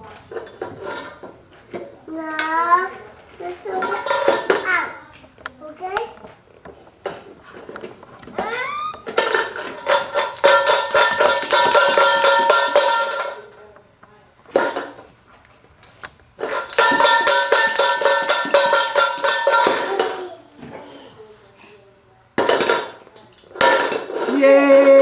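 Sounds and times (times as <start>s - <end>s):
clothespins rattling in metal can: 9.1s - 13.5s, 16.4s - 20.1s.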